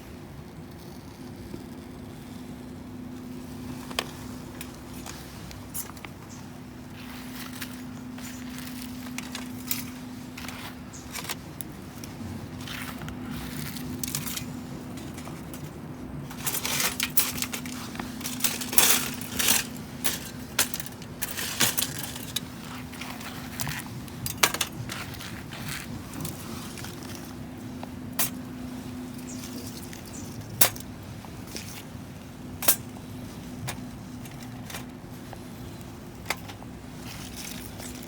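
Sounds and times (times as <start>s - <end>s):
steady low hum: 0.0s - 38.0s
small metal pieces clinking: 16.3s - 25.0s.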